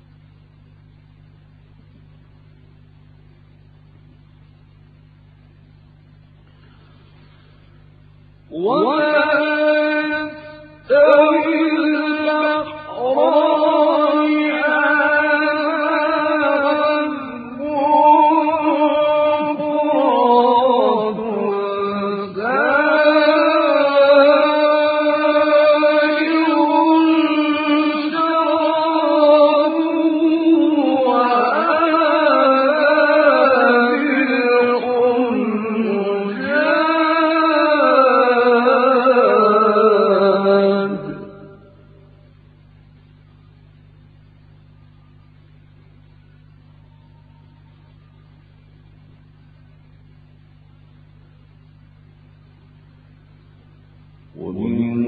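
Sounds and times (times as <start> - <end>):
man chanting recitation: 8.5 - 41.8, 54.3 - 55.0.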